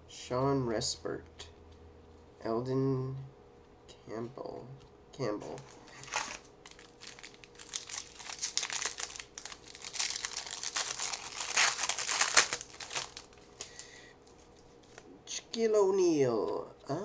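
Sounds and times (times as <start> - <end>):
wrapper tearing and crinkling: 5.6 - 13.8.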